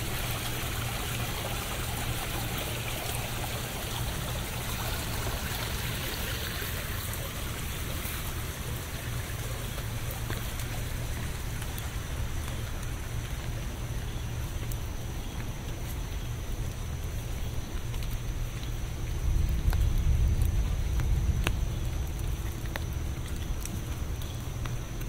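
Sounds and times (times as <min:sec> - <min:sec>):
steady rain hiss: 0:00.0 - 0:25.0
faint ticks: 0:09.7 - 0:25.0
low rumble: 0:18.7 - 0:24.2.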